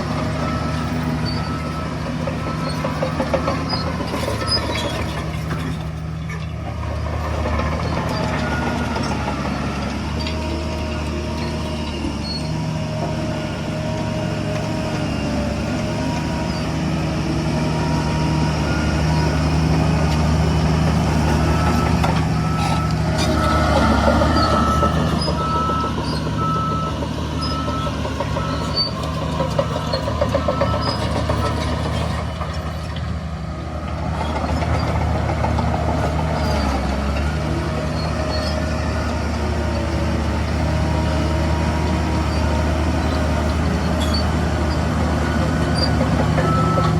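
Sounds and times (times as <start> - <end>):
heavy diesel machinery drone: 0.0 - 46.9
reversing alarm beeping: 21.4 - 31.9, 45.6 - 46.9.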